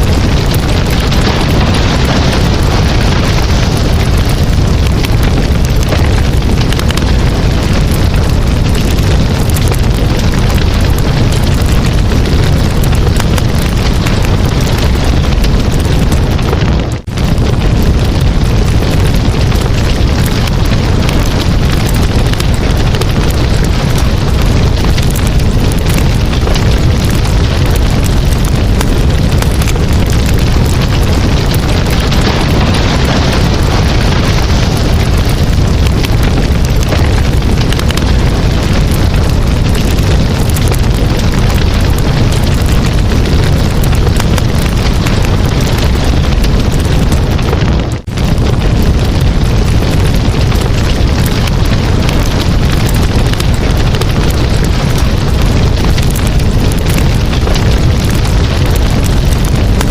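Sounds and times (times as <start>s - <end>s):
campfire crackling and popping: 0.0s - 59.9s
low rumble: 0.0s - 59.9s.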